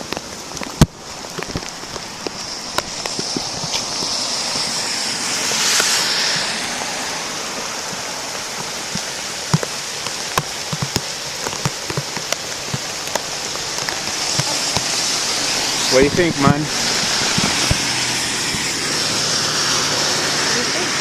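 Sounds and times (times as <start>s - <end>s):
creek rushing: 0.0s - 21.0s
steady rain: 0.0s - 21.0s.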